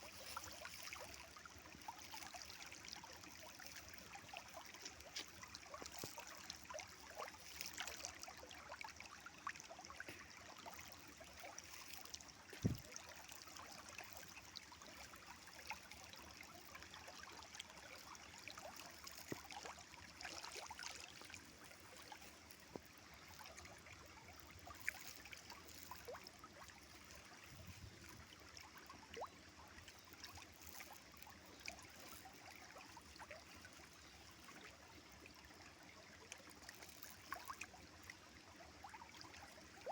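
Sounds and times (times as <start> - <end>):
river water flowing: 0.0 - 39.9
small splashes: 0.0 - 39.9.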